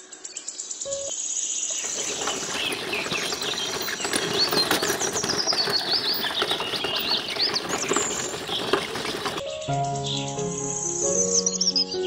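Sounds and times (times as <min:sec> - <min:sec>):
toy motor and gears rattling: 0:01.7 - 0:09.4
birds chirping: 0:01.7 - 0:10.3.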